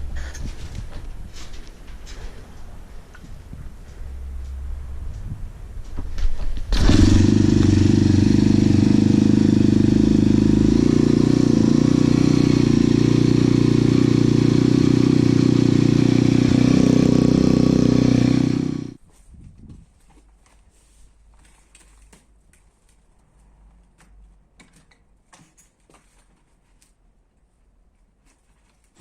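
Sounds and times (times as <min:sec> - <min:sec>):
pit bike engine starting and idling: 0:06.6 - 0:19.0.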